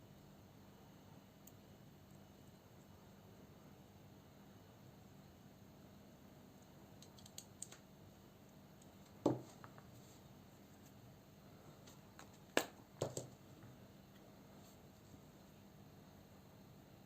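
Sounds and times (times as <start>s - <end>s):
small hard objects clicking: 7.0s - 7.8s.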